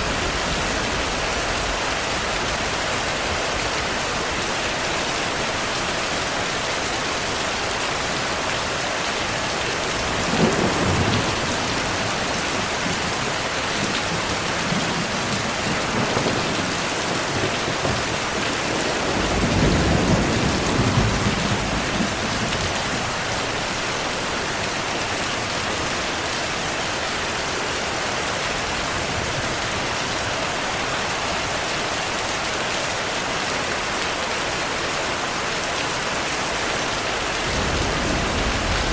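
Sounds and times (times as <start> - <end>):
heavy rain: 0.0 - 38.9
thunder rumbling: 10.0 - 23.8, 37.3 - 38.9.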